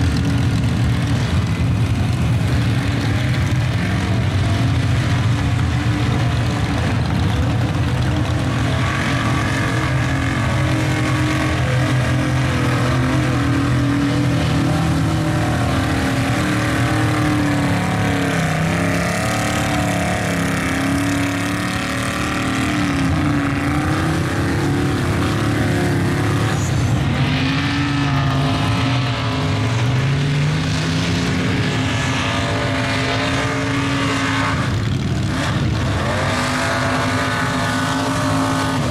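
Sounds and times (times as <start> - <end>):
truck engines revving: 0.0 - 38.9.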